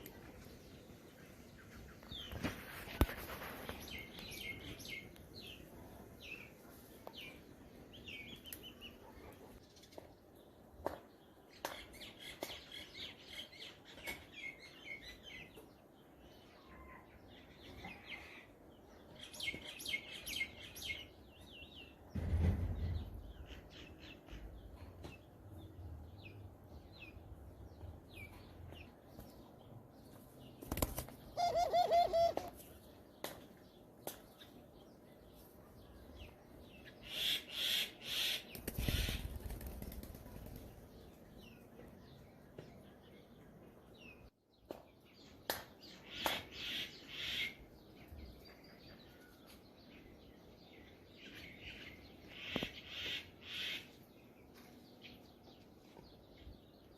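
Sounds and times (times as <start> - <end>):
birds chirping: 0.0 - 56.9
wings flapping: 30.6 - 31.3, 38.5 - 40.8.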